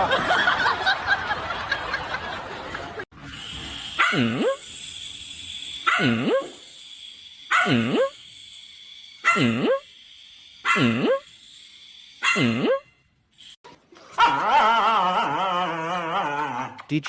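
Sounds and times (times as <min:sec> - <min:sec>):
pet drawn-out calls: 0:09.2 - 0:09.9, 0:12.2 - 0:12.9.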